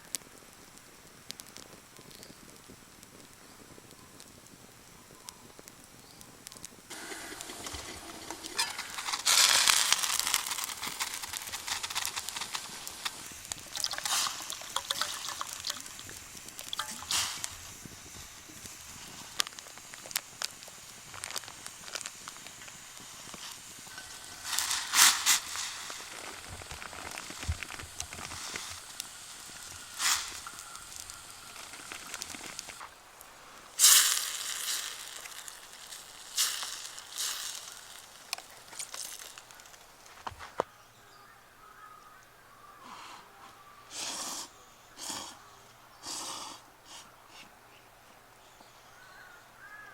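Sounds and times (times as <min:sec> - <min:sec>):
hissing rushes: 0:00.0 - 0:40.3, 0:43.8 - 0:47.1
campfire crackling and popping: 0:00.0 - 0:40.7.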